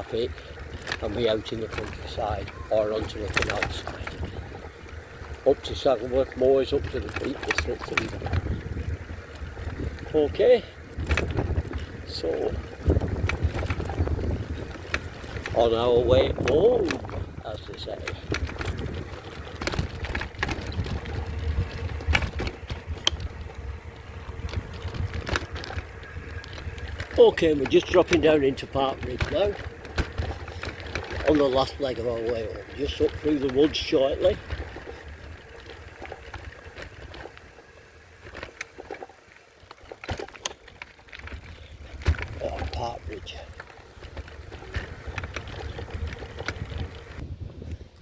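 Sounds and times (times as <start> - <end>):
sharp clicks and rattles: 0.0 - 48.0
tyres rumbling: 0.0 - 48.0
wind on microphone: 8.1 - 10.2, 10.8 - 27.1, 44.4 - 48.0.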